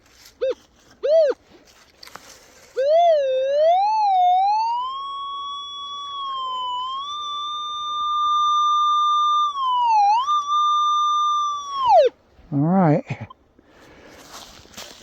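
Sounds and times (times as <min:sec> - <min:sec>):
metal detector tone: 0:00.4 - 0:01.4, 0:02.8 - 0:12.1.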